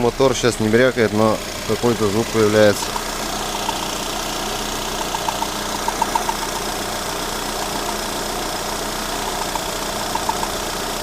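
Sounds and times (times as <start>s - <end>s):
car engine idling: 0.0s - 11.0s
short high chirps: 4.9s - 6.7s.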